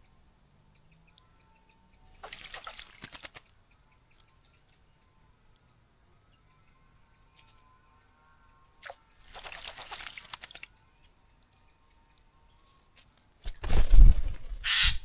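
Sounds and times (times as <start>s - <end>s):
bird splashing water: 2.1s - 4.2s, 8.8s - 10.9s.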